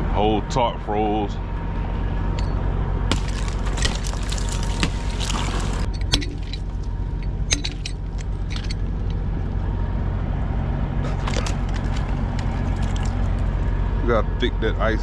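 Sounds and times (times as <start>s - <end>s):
ice crunching and cracking: 3.1s - 7.1s, 11.0s - 13.7s.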